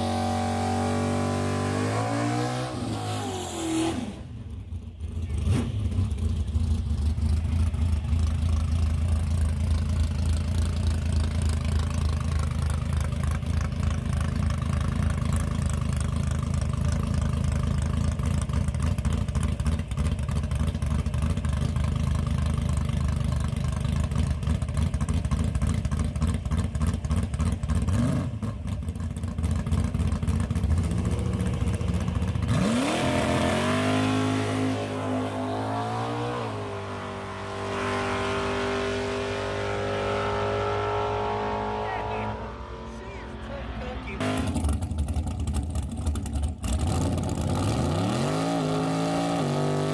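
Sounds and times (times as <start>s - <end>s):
engine idling and revving: 0.0s - 49.9s.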